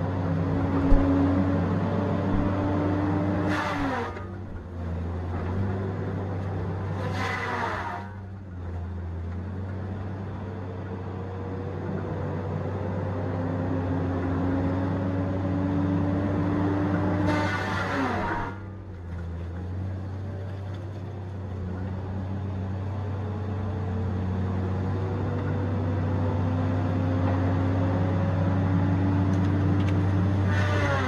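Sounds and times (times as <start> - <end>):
diesel engine and hydraulics: 0.0 - 31.0.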